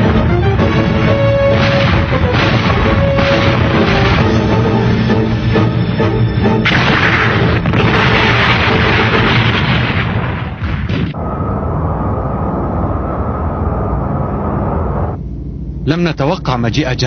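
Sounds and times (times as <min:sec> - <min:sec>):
dramatic background music: 0:00.0 - 0:15.2
cannon fire: 0:00.9 - 0:05.0, 0:06.6 - 0:11.2
explosions: 0:00.9 - 0:05.1, 0:06.6 - 0:12.3.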